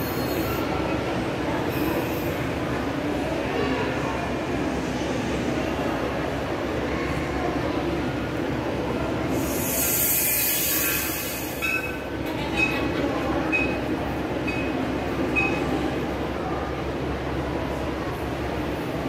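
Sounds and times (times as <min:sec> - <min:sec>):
hiss: 0:09.4 - 0:11.9.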